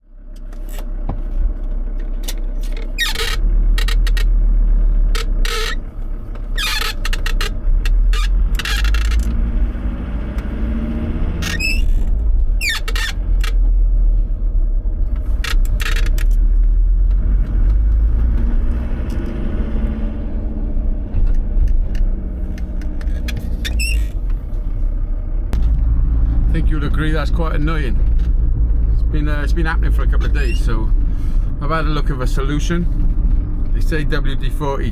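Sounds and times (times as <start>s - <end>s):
van engine rumble: 0.0s - 34.9s
clutch pedal squeaking: 2.1s - 4.4s, 5.1s - 9.4s, 11.4s - 13.6s, 15.1s - 16.4s, 21.6s - 24.6s, 30.2s - 30.8s.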